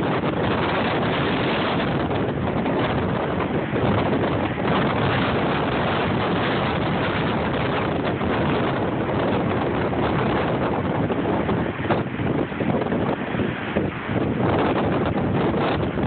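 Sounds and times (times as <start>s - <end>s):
storm wind on microphone: 0.0s - 16.0s.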